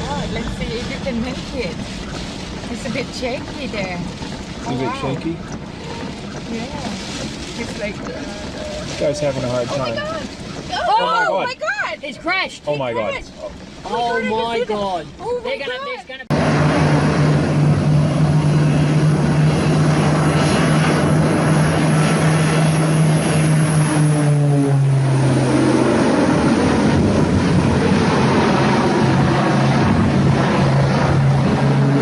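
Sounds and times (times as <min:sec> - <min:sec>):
propeller aircraft engine drone: 0:16.3 - 0:32.0.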